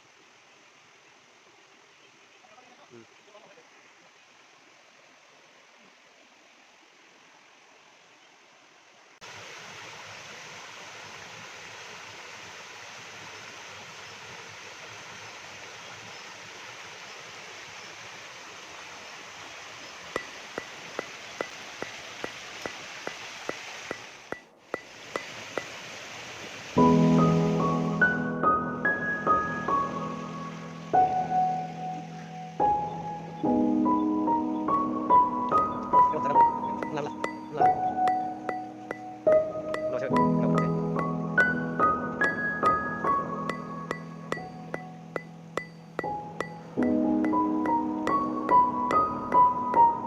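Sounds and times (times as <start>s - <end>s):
waterfall rushing: 18.2s - 27.8s
sharp ticks: 36.8s - 41.5s, 43.5s - 50.0s.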